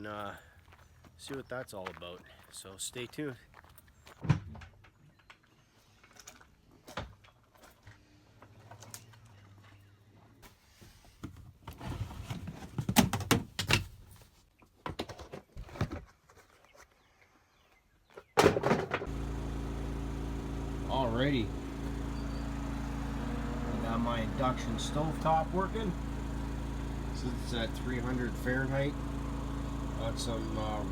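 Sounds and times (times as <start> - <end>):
objects knocking being set down: 18.4 - 19.1.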